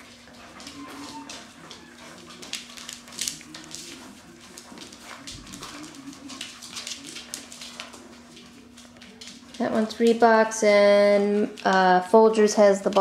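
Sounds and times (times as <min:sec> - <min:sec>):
puppies growling: 0:00.0 - 0:10.0.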